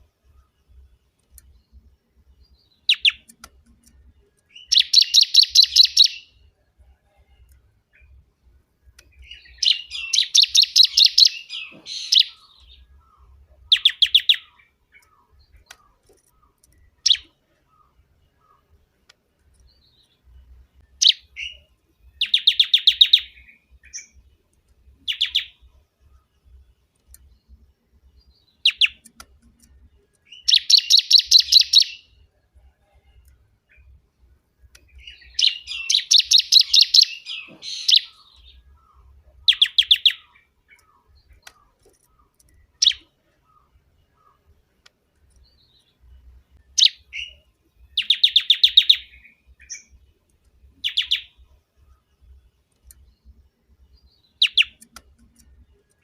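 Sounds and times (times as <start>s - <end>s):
bird singing rapid high notes: 2.4s - 3.8s, 4.4s - 6.4s, 9.1s - 18.7s, 20.8s - 24.2s, 28.2s - 29.5s, 30.2s - 32.2s, 34.9s - 41.7s, 46.6s - 50.0s, 54.0s - 55.7s
sharp bird call notes: 4.6s - 6.3s, 9.6s - 12.6s, 35.4s - 38.4s.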